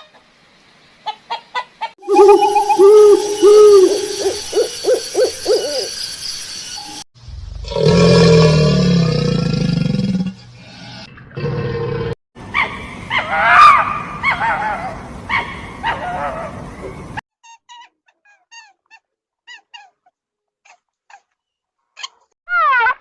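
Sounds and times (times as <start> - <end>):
faint high chirps: 2.0 - 7.1.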